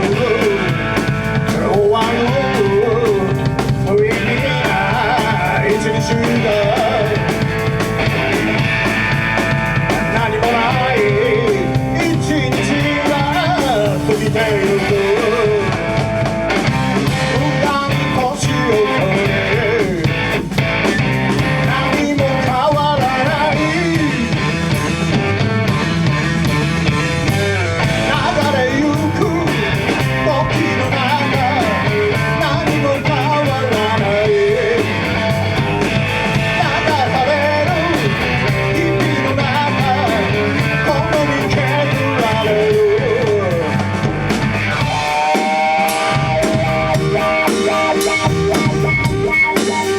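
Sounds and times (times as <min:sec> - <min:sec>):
lead guitar line bending in pitch: 0:00.0 - 0:49.9
rock band playing: 0:00.0 - 0:49.9.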